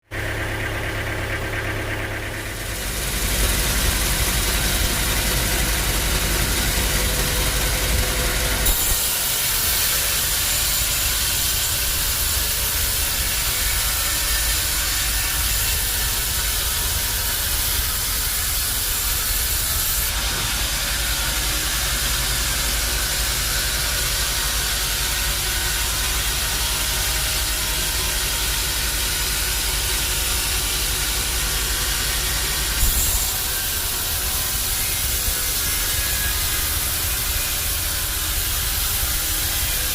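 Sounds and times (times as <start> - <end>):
low machine hum: 0.1 - 39.9
bandsaw hiss: 8.6 - 22.0, 30.4 - 39.9.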